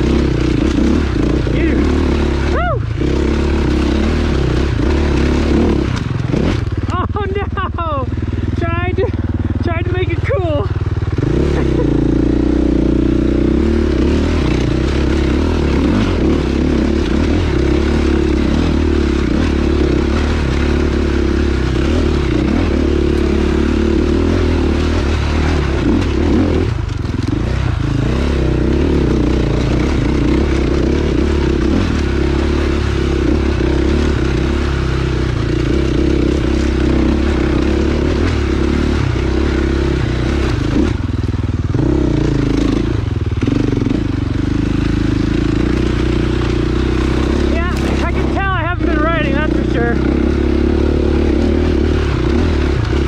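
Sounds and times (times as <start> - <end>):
bike rattling and scraping: 0.0 - 53.0
dirt bike engine running: 0.0 - 53.0.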